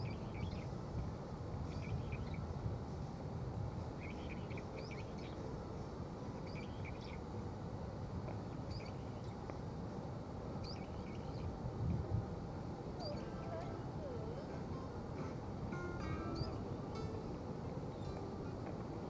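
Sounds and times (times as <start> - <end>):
city background hum: 0.0 - 19.0
small birds chirping: 1.7 - 2.4, 3.9 - 5.4, 6.4 - 7.2, 8.5 - 9.6, 10.6 - 11.6, 13.0 - 14.9.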